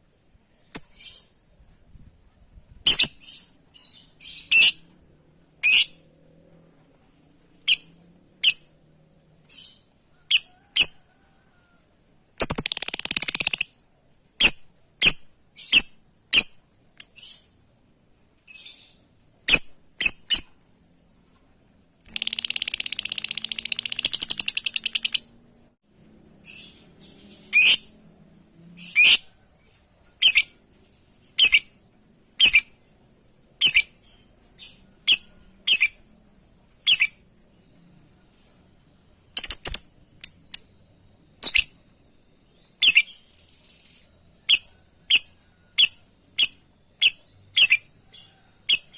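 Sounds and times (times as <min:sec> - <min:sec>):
lovebird high-pitched calls: 0:02.8 - 0:04.9, 0:05.6 - 0:06.1, 0:07.5 - 0:08.8, 0:09.5 - 0:11.0, 0:12.4 - 0:13.8, 0:14.4 - 0:17.6, 0:18.5 - 0:20.6, 0:22.0 - 0:25.3, 0:26.4 - 0:28.0, 0:28.8 - 0:29.3, 0:30.2 - 0:32.8, 0:33.6 - 0:36.1, 0:36.7 - 0:37.3, 0:39.4 - 0:40.8, 0:41.4 - 0:41.9, 0:42.5 - 0:48.9
lovebird rapid chattering: 0:12.4 - 0:13.8, 0:22.0 - 0:25.3.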